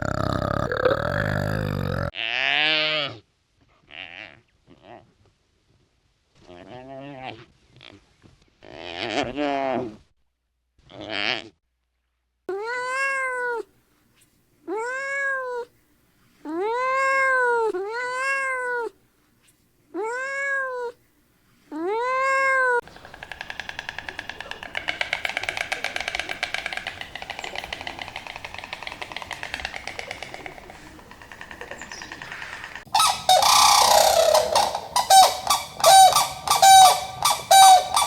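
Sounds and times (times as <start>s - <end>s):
cat meowing: 20.0s - 21.0s.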